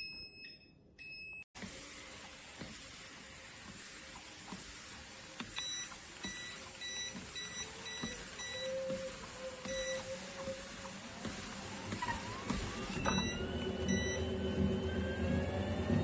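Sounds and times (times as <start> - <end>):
treadmill motor hum: 1.6 - 16.0.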